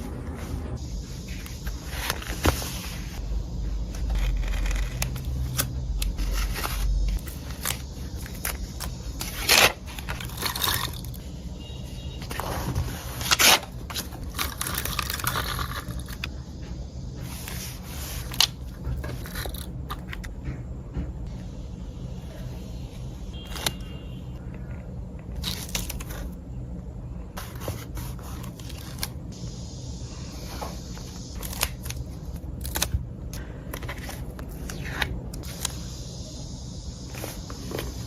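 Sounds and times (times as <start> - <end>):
paper scraping and rustling: 1.1 - 3.2, 3.9 - 11.2, 12.2 - 16.3, 27.4 - 29.2, 33.8 - 35.6.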